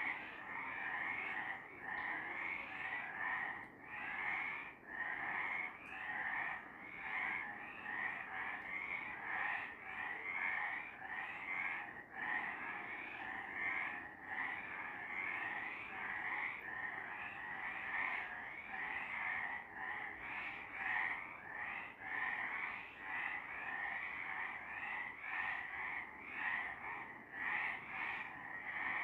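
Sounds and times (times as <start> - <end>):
frogs croaking: 0.0 - 29.0.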